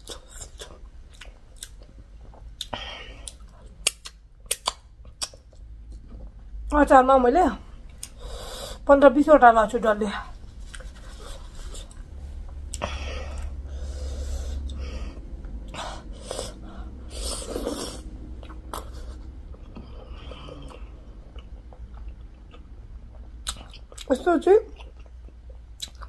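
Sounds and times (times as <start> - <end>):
mouth chewing food: 0.0 - 6.6, 17.2 - 24.1, 24.7 - 26.0
low rumble: 5.5 - 23.8.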